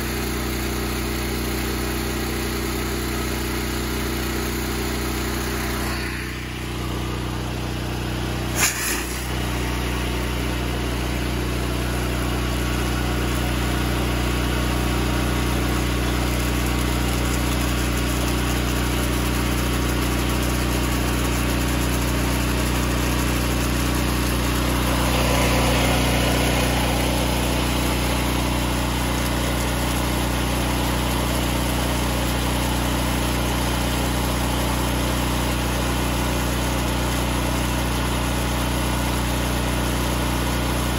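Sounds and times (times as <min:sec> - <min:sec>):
pressure washer engine running: 0:00.0 - 0:40.9
hiss: 0:08.5 - 0:09.6.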